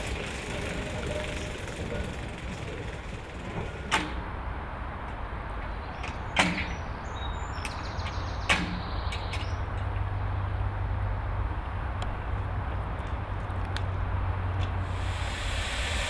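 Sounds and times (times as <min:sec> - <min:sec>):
steam locomotive running: 0:00.0 - 0:05.4, 0:14.7 - 0:16.0.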